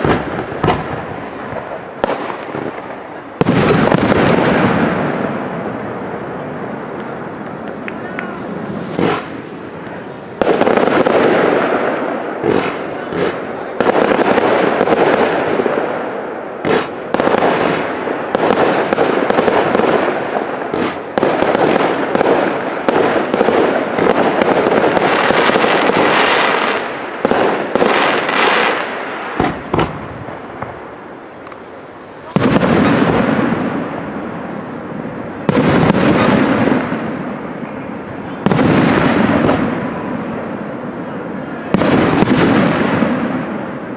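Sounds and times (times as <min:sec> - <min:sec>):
fireworks crackling after bursts: 0:00.0 - 0:43.9
firework shells bursting: 0:06.9 - 0:15.6.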